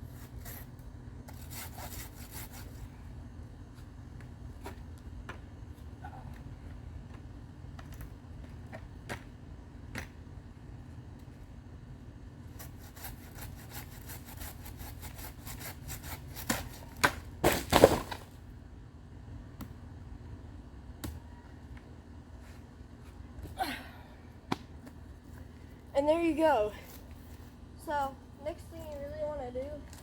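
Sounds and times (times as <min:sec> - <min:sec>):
handsaw cutting woody stalk: 0:01.3 - 0:02.8, 0:12.6 - 0:16.9.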